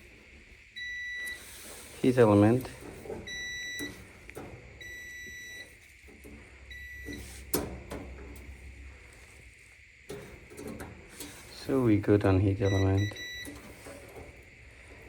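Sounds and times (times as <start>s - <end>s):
multimeter continuity beep: 0.8s - 1.4s, 2.0s - 5.8s, 6.6s - 8.2s, 11.9s - 13.7s.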